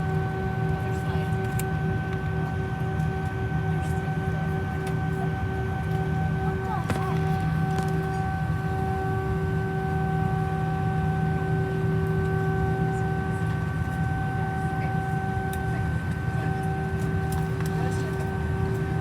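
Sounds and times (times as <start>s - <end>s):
aircraft cabin low rumble: 0.0s - 19.0s.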